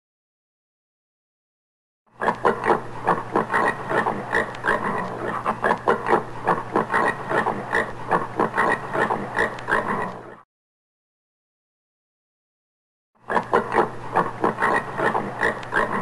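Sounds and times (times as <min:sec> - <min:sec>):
warthog grunting: 0:02.2 - 0:10.4, 0:13.3 - 0:16.0.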